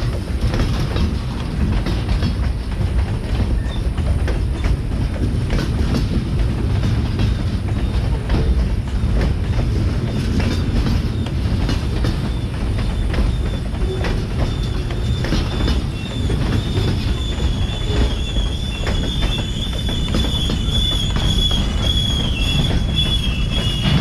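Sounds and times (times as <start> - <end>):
freight train rumbling: 0.0 - 24.0
high wheel squeal: 12.2 - 24.0.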